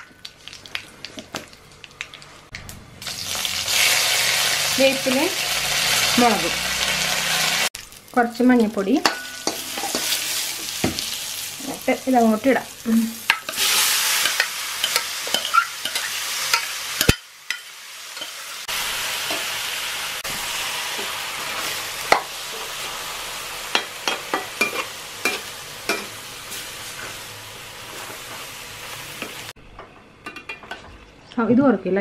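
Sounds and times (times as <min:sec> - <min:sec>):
food sizzling in wok: 0:03.0 - 0:29.6
steel spoon scraping pan: 0:09.0 - 0:10.5.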